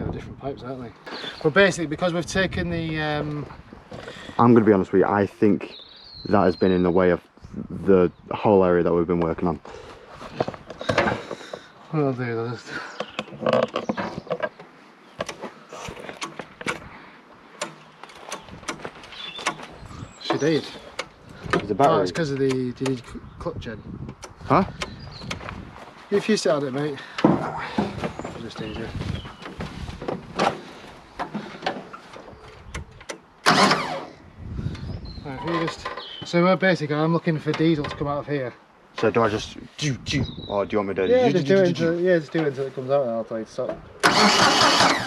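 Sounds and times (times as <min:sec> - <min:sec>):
tools clicking and knocking: 0:13.2 - 0:16.9
loud scrape: 0:15.7 - 0:16.9.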